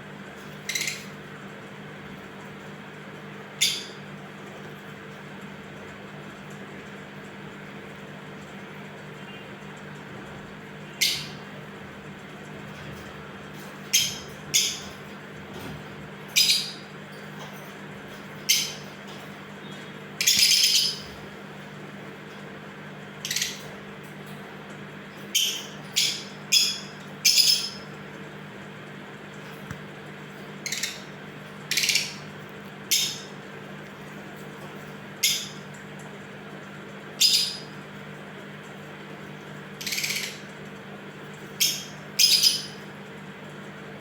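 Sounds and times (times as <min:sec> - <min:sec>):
faint steady hum: 0:00.0 - 0:44.0
lovebirds chirping shrilly: 0:20.2 - 0:21.1.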